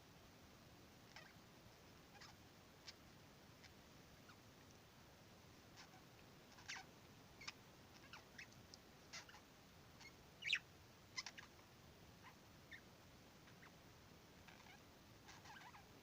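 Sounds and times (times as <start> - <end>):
budgerigar chirping and clicking: 5.8 - 9.4, 10.0 - 10.6, 11.2 - 11.6, 14.5 - 15.8.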